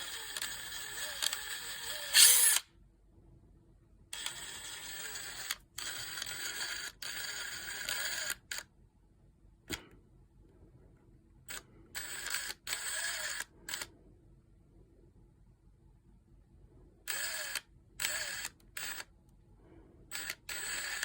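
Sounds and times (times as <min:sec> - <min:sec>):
cordless power tool motor bursts: 0:00.0 - 0:02.6, 0:17.1 - 0:19.1, 0:20.1 - 0:21.0.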